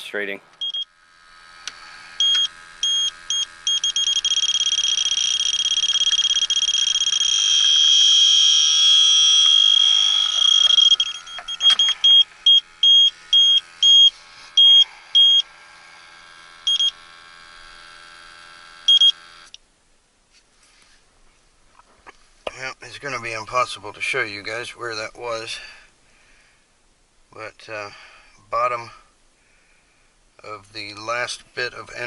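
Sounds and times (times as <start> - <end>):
steady hum: 0.0 - 20.2
continuous alarm tone: 0.6 - 17.8, 18.8 - 19.5
leak detector beeping: 0.6 - 19.5.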